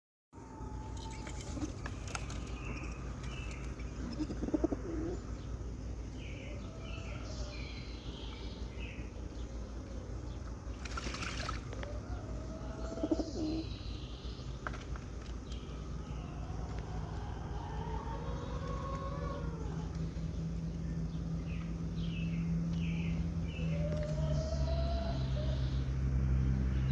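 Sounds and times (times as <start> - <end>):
birds chirping: 0.4 - 26.9
pigeon cooing: 0.7 - 3.0, 3.9 - 5.3, 11.4 - 13.8, 15.9 - 20.2
wings flapping and water splashing: 0.9 - 4.0, 10.7 - 12.0.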